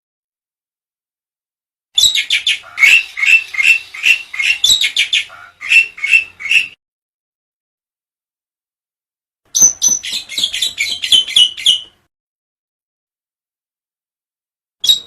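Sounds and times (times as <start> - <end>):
bird calling loud clipped notes: 2.0 - 6.8.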